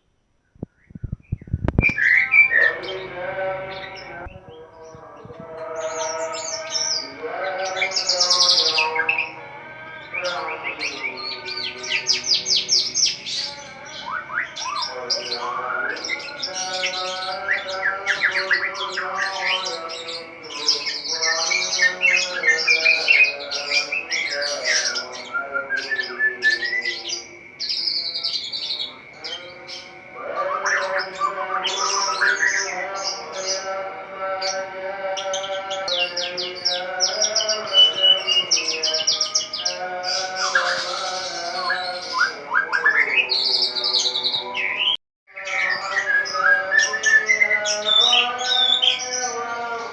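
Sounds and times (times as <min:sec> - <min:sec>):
songbird singing: 0:00.0 - 0:49.9.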